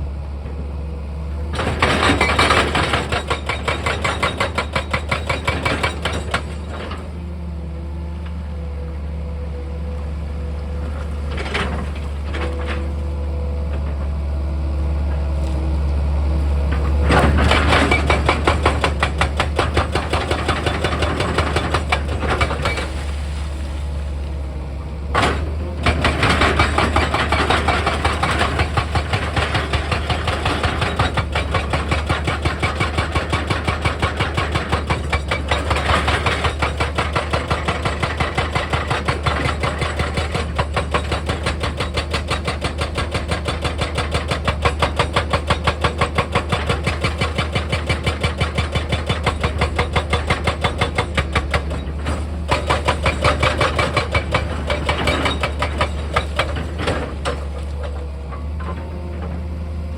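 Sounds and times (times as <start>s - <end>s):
diesel engine drone: 6.7s - 19.2s, 21.1s - 29.5s.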